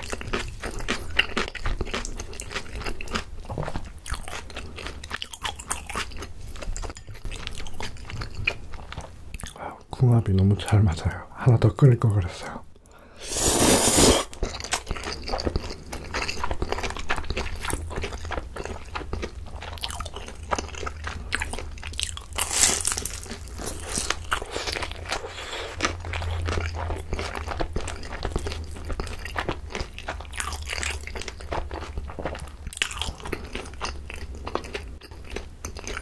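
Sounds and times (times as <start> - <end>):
wet chewing and crunching: 0.0 - 9.6, 13.4 - 36.0.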